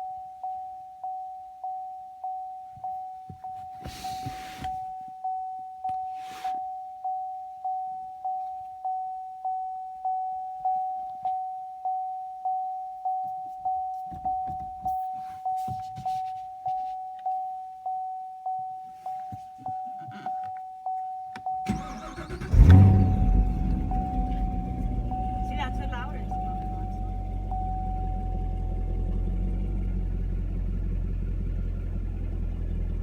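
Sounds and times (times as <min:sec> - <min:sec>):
faint handling noises in cabin: 0:02.8 - 0:05.1, 0:13.3 - 0:17.4, 0:19.0 - 0:20.7
car warning chime dinging: 0:04.9 - 0:31.4
car engine cranking: 0:21.6 - 0:33.0.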